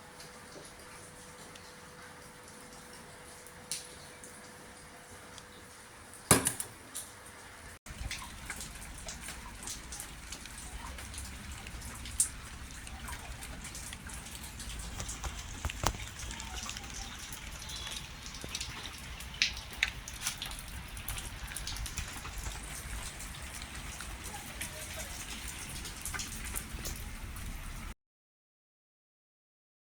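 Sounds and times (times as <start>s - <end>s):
rain falling steadily: 0.0s - 28.0s
drops striking hard surface: 6.3s - 6.8s.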